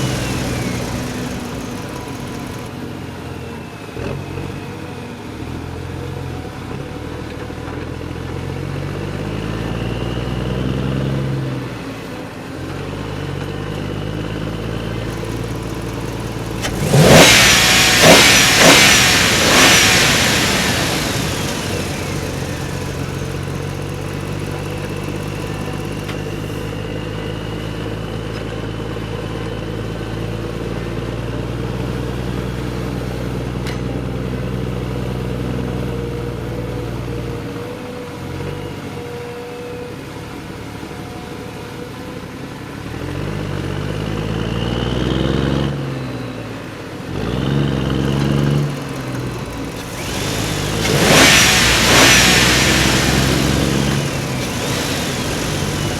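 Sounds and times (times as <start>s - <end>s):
engine running and revving: 0.0s - 2.8s, 13.4s - 26.8s, 47.1s - 55.9s.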